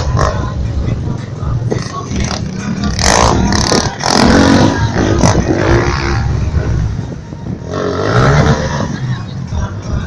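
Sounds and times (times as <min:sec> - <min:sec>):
motorcycle engine revving: 0:01.7 - 0:09.7.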